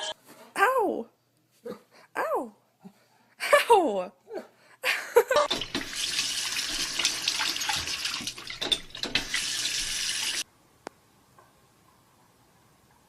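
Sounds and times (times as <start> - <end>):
water running from a tap: 5.5 - 10.4.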